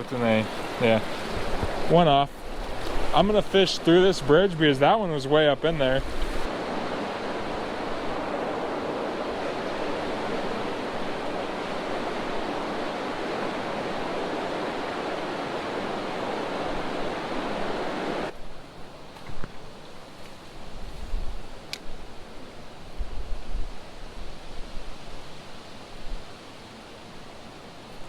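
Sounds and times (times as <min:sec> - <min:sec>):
fast-flowing creek water: 0:00.0 - 0:18.4.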